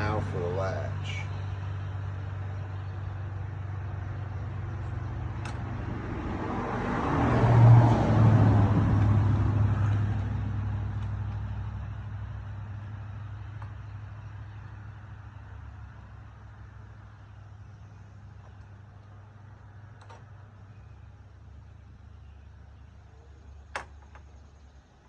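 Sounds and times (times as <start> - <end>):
steady low hum: 0.0 - 6.8
road vehicle passing by: 0.0 - 23.8.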